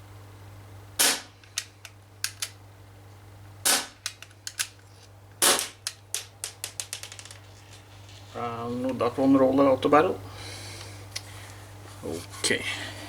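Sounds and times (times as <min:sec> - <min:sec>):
air pistol shots popping: 0:01.0 - 0:01.4, 0:03.6 - 0:04.1, 0:05.4 - 0:05.9.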